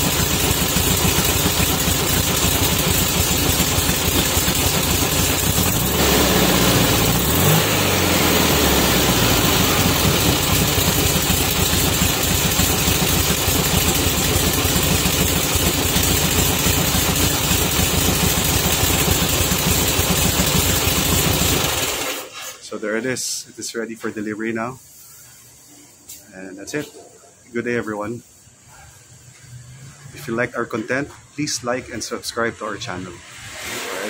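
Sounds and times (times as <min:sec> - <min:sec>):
van engine revving and idling: 0:00.0 - 0:22.2.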